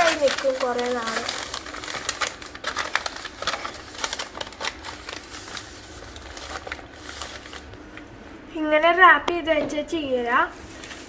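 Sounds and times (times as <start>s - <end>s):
newspaper crinkling: 0.0s - 8.0s, 10.5s - 11.0s.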